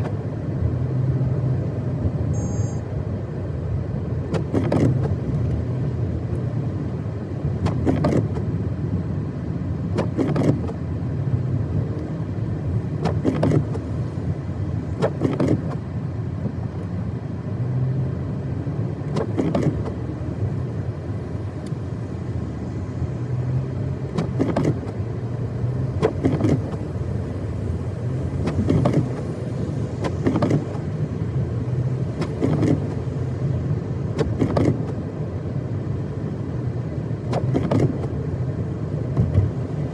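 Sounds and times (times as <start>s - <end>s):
engine and road rumble: 0.0s - 39.9s
windshield wiper sweep: 4.1s - 39.9s.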